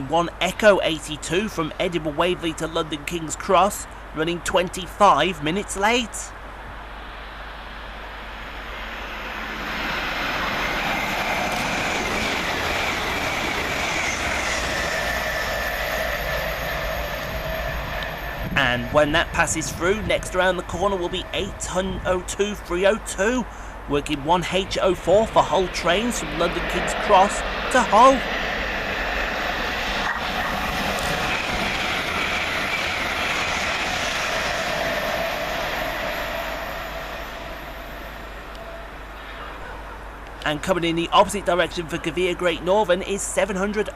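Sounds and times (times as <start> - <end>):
train rail noise: 0.0 - 43.9
high whine: 6.9 - 23.3, 23.9 - 39.7.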